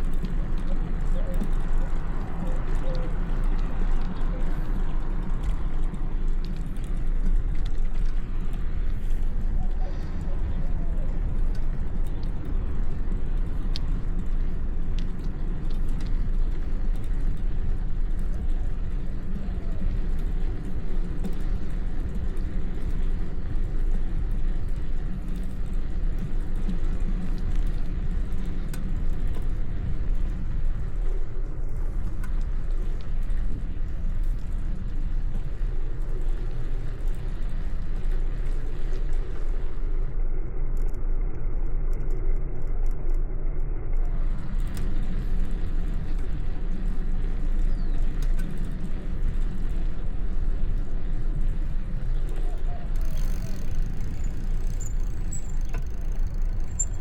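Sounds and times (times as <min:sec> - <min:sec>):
low wind rumble on microphone: 0:00.0 - 0:57.0
light clicks and rattles: 0:52.2 - 0:57.0.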